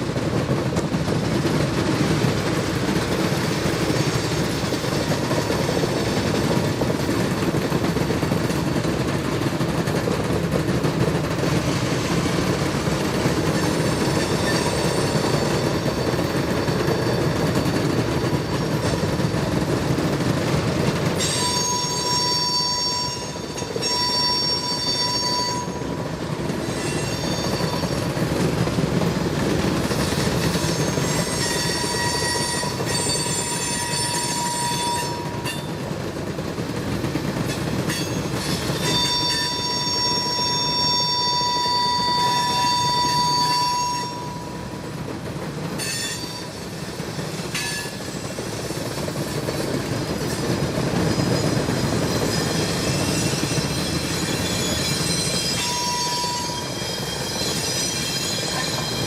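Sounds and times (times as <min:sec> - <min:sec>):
railcar wheels rumbling on rail: 0:00.0 - 0:59.0
high wheel squeal: 0:13.5 - 0:19.2, 0:21.2 - 0:26.0, 0:26.6 - 0:28.2, 0:30.0 - 0:35.7, 0:37.9 - 0:44.7, 0:45.8 - 0:46.8, 0:51.0 - 0:59.0.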